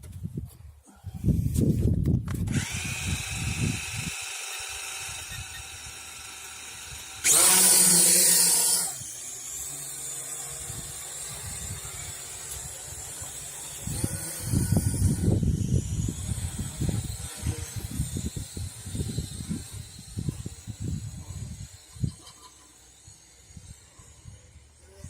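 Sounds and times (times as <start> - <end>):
wind buffeting microphone: 0.0 - 4.2, 10.6 - 22.2
quadcopter propellers whining: 2.4 - 25.0.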